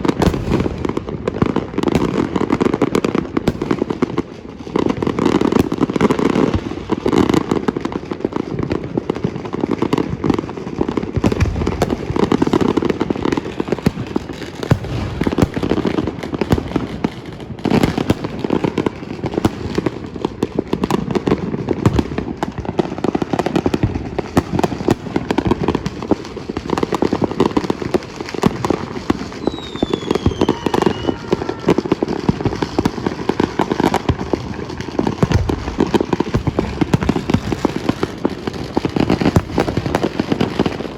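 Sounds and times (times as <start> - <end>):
fireworks crackling and banging: 0.0 - 40.9
falling firework whistle: 28.2 - 38.0.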